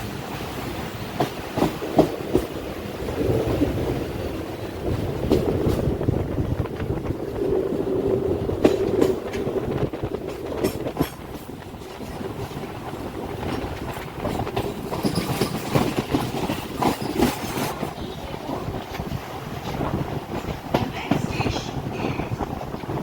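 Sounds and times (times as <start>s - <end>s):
train rumble: 0.0s - 23.0s
wheels clacking over rail joints: 0.6s - 23.0s.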